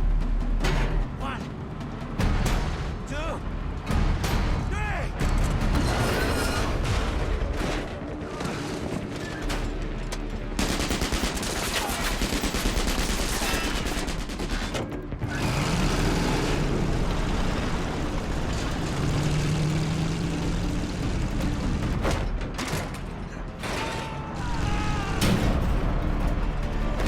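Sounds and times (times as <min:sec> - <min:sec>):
film score music: 0:00.0 - 0:27.0
rapid gunfire: 0:10.6 - 0:19.4.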